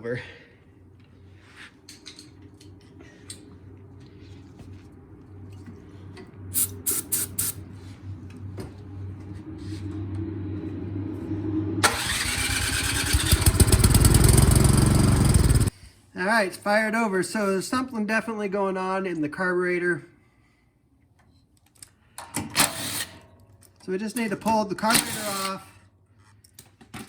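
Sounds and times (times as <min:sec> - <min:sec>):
spray can hissing: 0:06.5 - 0:07.6
snowblower engine running loudly: 0:09.7 - 0:15.7.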